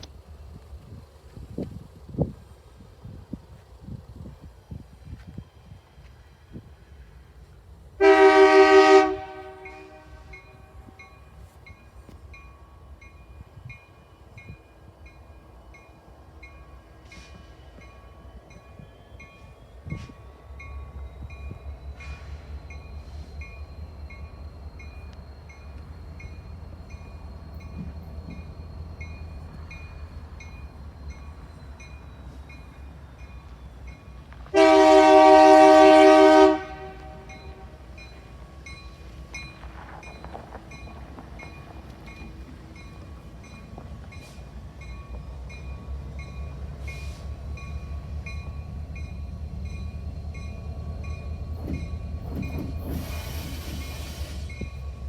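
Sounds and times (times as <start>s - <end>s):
train rumbling: 0.0s - 55.0s
locomotive air horn blasts: 8.0s - 10.9s, 34.5s - 37.8s.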